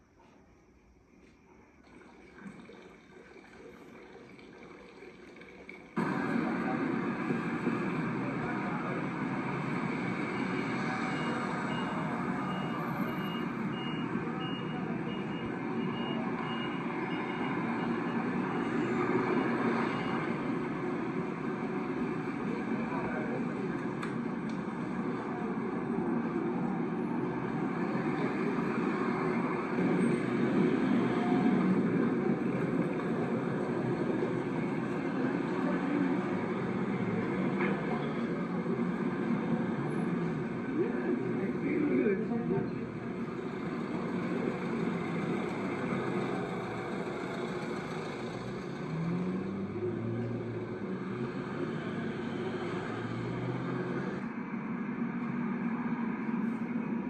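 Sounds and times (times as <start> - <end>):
moving vehicle rumble: 0.0 - 57.0.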